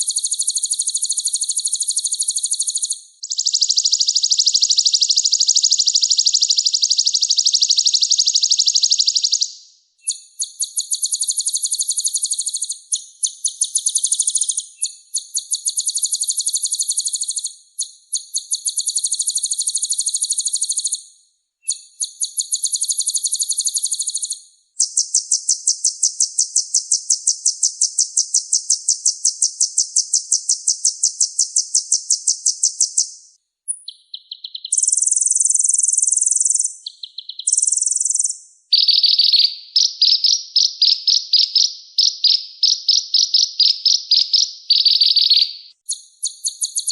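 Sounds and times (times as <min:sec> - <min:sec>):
bird high-pitched trills: 0:00.0 - 0:09.4, 0:33.7 - 0:46.9.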